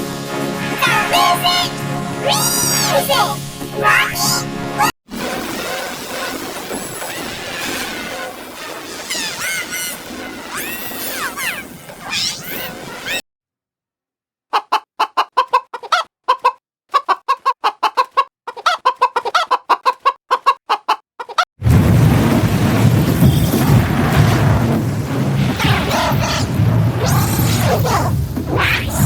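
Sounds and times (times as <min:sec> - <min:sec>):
chicken clucking: 0:14.5 - 0:21.5.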